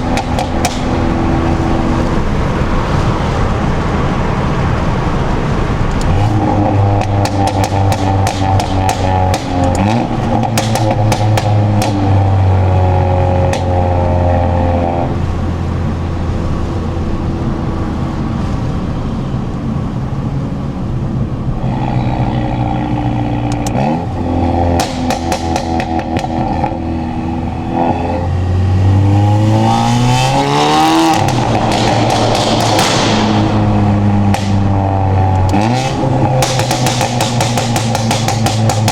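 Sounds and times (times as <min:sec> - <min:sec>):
exhaust pops and bangs: 0:00.0 - 0:03.3, 0:06.0 - 0:12.6, 0:13.2 - 0:14.0, 0:23.5 - 0:26.8, 0:30.4 - 0:38.9
car engine revving: 0:00.0 - 0:38.9.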